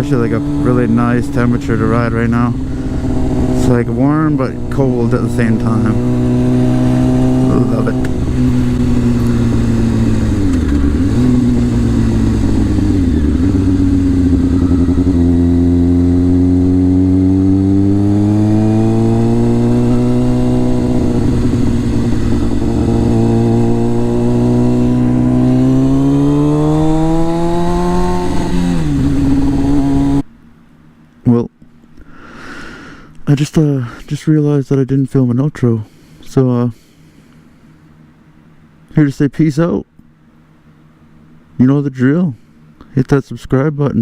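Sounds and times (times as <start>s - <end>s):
motorcycle engine with gear changes: 0.0s - 32.0s.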